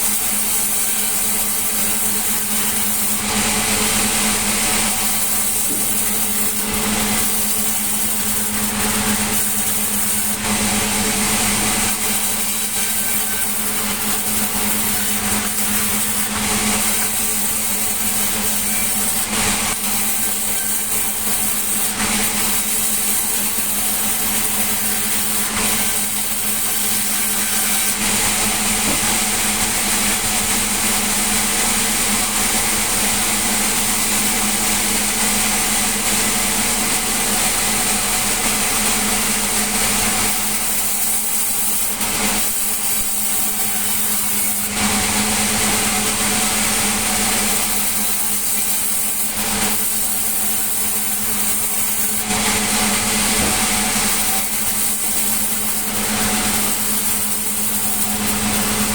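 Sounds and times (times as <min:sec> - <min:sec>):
hissing saw noise: 0:00.0 - 0:30.9.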